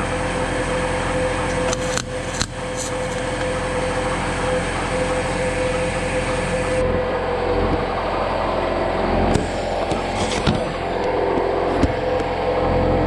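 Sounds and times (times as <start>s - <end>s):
welder arc crackling: 0.0s - 6.8s
steady hum: 0.0s - 13.0s.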